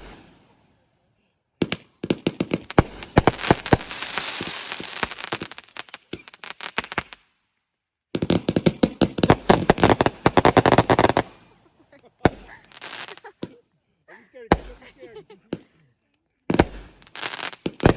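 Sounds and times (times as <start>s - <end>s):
fireworks bangs and crackles: 0.0s - 0.5s, 1.6s - 7.2s, 8.2s - 11.6s, 12.2s - 13.6s, 14.5s - 15.6s, 16.5s - 17.9s
falling firework whistles: 2.6s - 6.6s.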